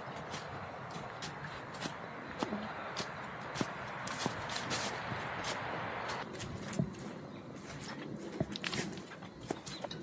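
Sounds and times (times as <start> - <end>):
footsteps on a trail: 0.0 - 10.0
steady rustle: 3.0 - 10.0.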